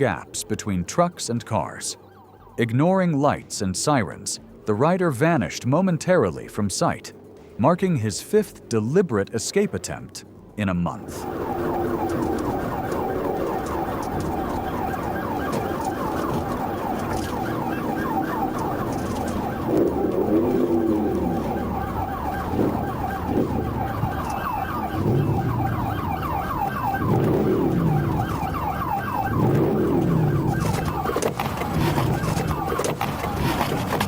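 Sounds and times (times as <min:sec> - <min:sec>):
police siren yelp: 0:01.5 - 0:02.8, 0:11.0 - 0:34.0
lower wailing siren tone: 0:01.6 - 0:02.8, 0:11.0 - 0:34.0.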